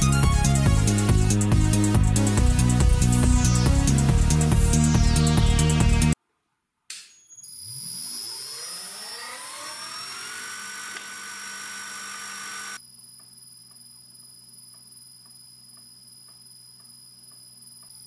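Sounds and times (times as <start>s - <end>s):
electric motor whine: 7.6s - 12.8s.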